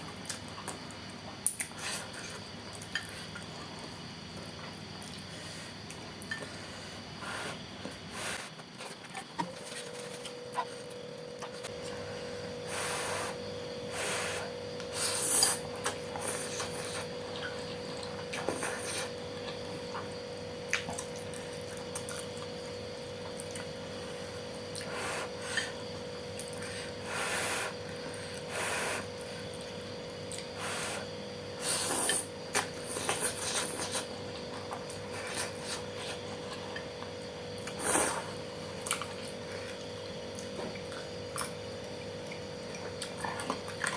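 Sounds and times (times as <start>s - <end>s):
crunchy chewing: 14.7s - 43.9s.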